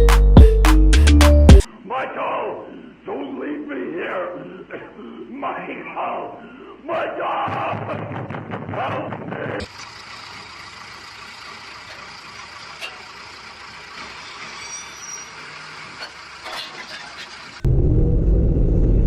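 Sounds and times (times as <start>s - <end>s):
traffic noise: 9.6s - 19.0s
low vehicle rumble: 9.7s - 19.0s.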